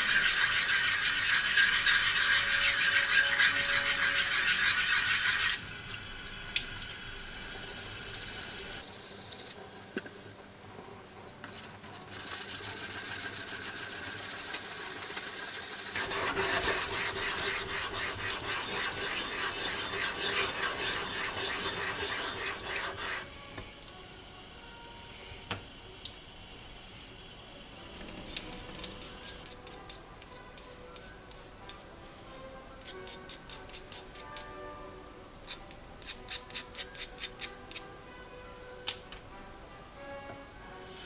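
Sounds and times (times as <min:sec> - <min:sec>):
stone scraping on sharpening stone: 0:07.3 - 0:17.5.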